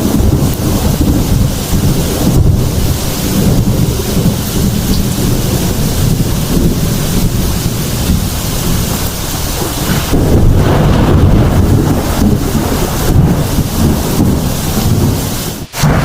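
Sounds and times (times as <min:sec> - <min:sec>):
heavy rain falling: 0:00.0 - 0:16.0
thunder rumbling: 0:00.0 - 0:16.0.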